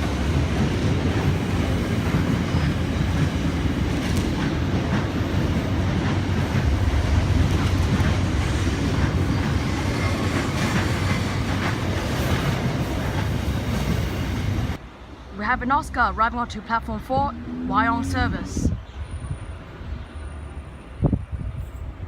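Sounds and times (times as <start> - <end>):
train clicks: 0.0 - 14.8
electric train rumble: 0.0 - 22.0.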